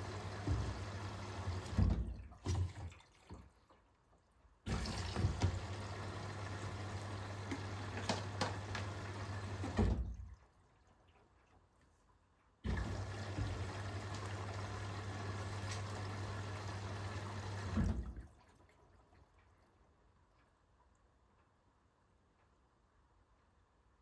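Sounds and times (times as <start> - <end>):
washing machine motor humming: 0.0 - 2.3, 4.7 - 10.2, 12.6 - 18.3
water and laundry sloshing: 0.0 - 19.8.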